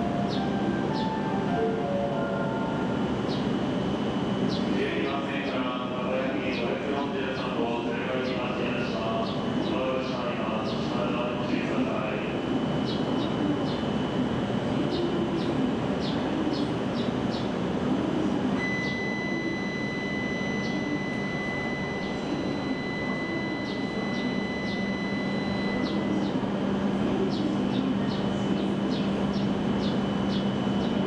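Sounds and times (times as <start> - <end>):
train running noise: 0.0 - 31.0
high steady tone: 18.6 - 26.4.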